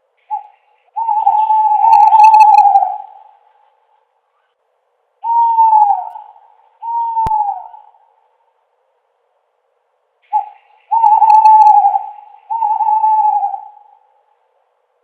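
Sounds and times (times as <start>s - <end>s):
owl hooting: 0.2s - 3.7s, 5.2s - 8.3s, 10.2s - 14.4s.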